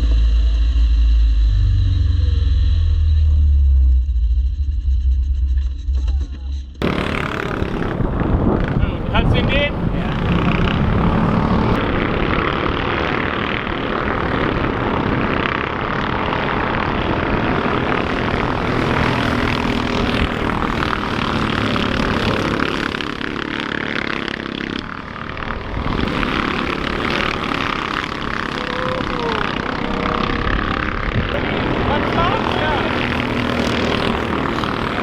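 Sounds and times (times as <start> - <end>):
off-road vehicle engines droning: 0.0 - 35.0.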